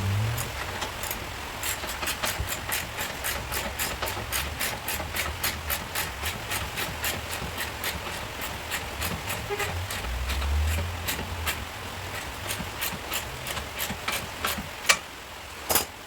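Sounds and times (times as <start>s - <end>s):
rapid sharp ticks: 0.0s - 15.0s
low steady hum: 8.7s - 14.5s.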